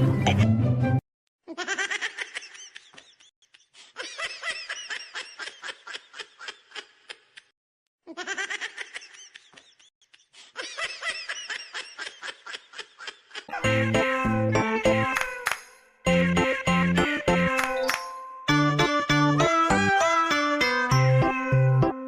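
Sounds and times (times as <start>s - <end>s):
high-pitched giggling laughter: 1.5s - 7.5s, 8.1s - 14.1s.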